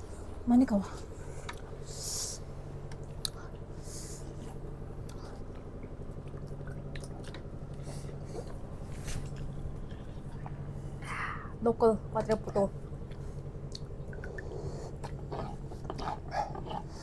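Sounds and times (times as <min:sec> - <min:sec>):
steady low hum: 0:00.0 - 0:17.0
person chewing noodles: 0:01.3 - 0:10.8, 0:13.0 - 0:17.0.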